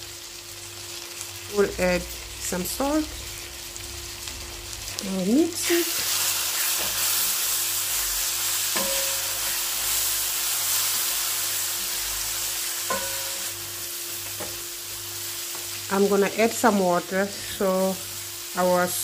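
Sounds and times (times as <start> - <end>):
food sizzling in hot oil: 0.0 - 19.0
spatula knocking on pan: 8.8 - 9.4, 12.9 - 13.4.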